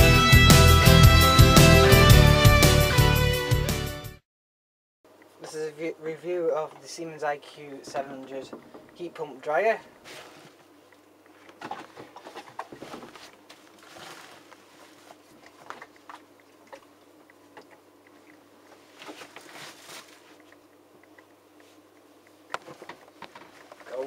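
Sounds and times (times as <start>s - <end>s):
clicks and rustles of handling: 17.6s - 24.0s.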